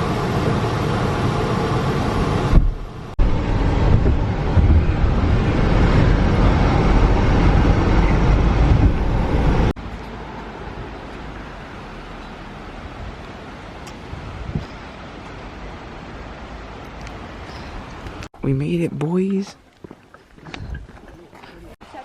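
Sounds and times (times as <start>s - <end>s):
car road and wind noise: 0.0s - 18.3s, 19.8s - 21.8s.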